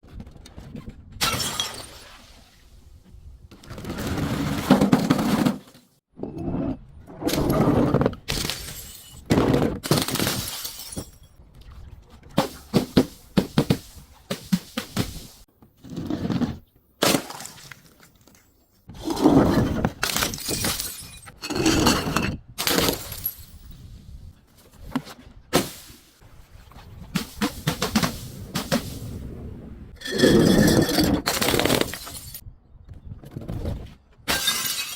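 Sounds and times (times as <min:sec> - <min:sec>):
glass bottles smashing: 0:01.2 - 0:02.0, 0:08.3 - 0:09.3, 0:09.9 - 0:11.4, 0:20.0 - 0:21.4, 0:22.6 - 0:23.7, 0:30.0 - 0:32.4, 0:34.3 - 0:34.9.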